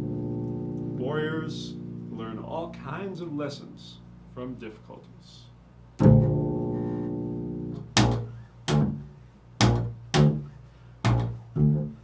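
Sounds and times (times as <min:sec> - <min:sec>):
low plucked string notes: 0:00.0 - 0:02.9, 0:06.0 - 0:10.5, 0:11.1 - 0:12.0.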